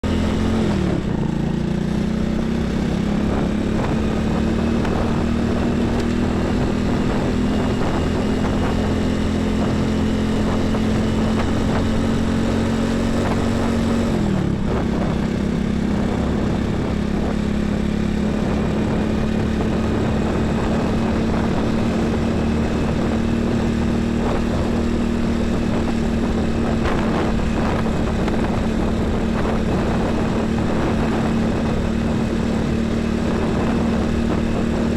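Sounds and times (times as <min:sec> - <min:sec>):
highway traffic engine drone: 0:00.0 - 0:34.9.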